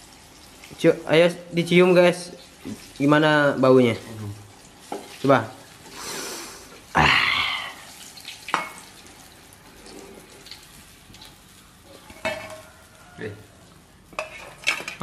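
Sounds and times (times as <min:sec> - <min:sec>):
food frying in oil: 0:00.0 - 0:15.0
metal spatula scraping wok: 0:14.1 - 0:15.0.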